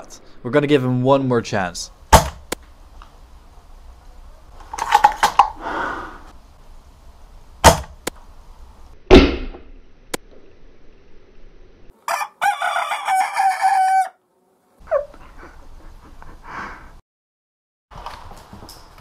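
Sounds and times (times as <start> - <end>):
bb striking: 2.1 - 2.6, 7.6 - 8.2, 9.1 - 9.8.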